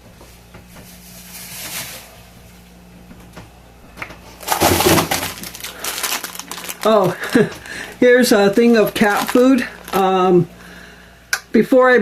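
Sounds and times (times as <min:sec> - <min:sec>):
freezer low hum: 0:00.0 - 0:12.0
frozen food bags rustling: 0:00.9 - 0:02.4, 0:04.2 - 0:11.0
plastic bag crinkling: 0:01.1 - 0:02.1, 0:04.3 - 0:10.5.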